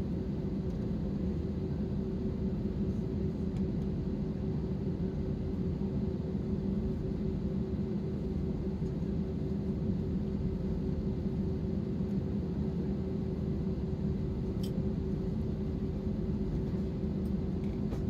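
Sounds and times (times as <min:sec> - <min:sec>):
aircraft cabin rumble and hum: 0:00.0 - 0:18.0.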